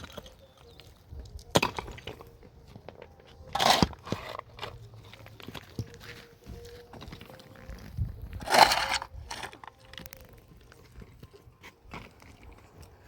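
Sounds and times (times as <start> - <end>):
gritty scrape: 3.4 - 5.1, 7.4 - 9.8.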